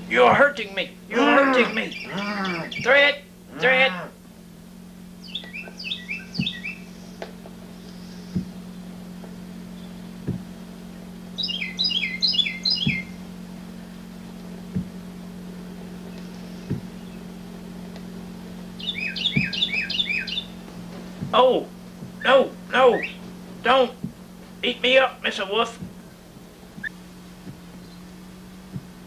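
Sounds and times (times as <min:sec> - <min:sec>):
steady low hum: 0:00.0 - 0:29.0
bird chirping: 0:01.6 - 0:03.0, 0:05.2 - 0:08.9, 0:09.6 - 0:10.1, 0:11.3 - 0:13.2, 0:16.0 - 0:17.3, 0:18.7 - 0:20.6, 0:22.2 - 0:24.0, 0:27.8 - 0:28.7
faint knocks: 0:16.1 - 0:17.0.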